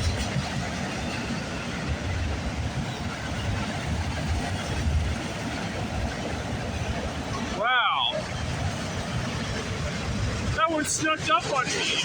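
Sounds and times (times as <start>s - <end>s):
train wheels rumbling on rail: 0.0s - 12.0s
rushing noise: 5.8s - 12.0s.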